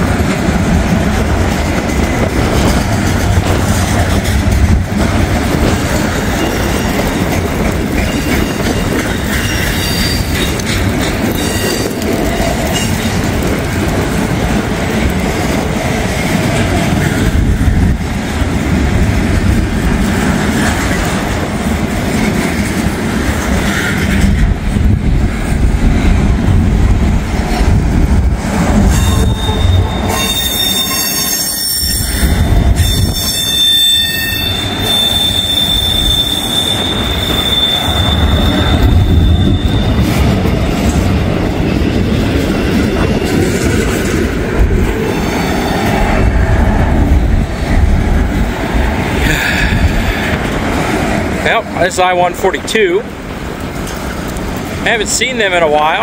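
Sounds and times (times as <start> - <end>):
freight train rumbling on rails: 0.0 - 56.0
high wheel squeal: 8.0 - 10.6, 28.9 - 40.4.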